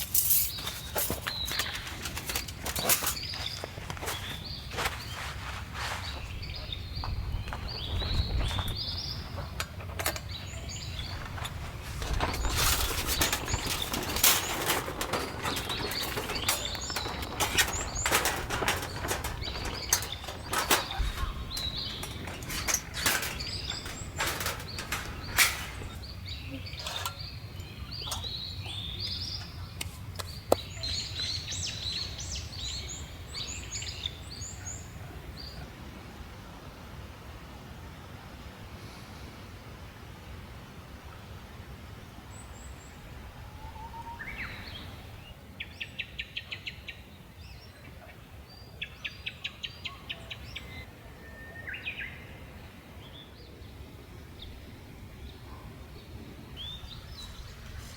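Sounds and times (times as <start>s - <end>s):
small birds chirping: 0.0s - 35.6s
sharp clicks and knocks: 11.0s - 27.3s.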